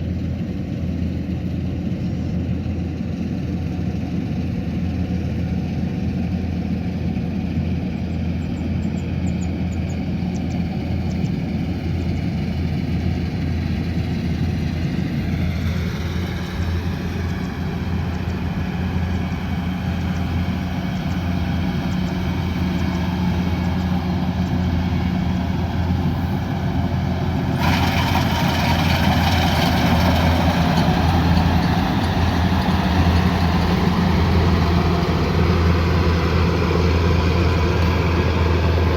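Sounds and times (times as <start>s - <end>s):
diesel engine humming: 0.2s - 38.9s
rushing noise: 14.5s - 38.9s.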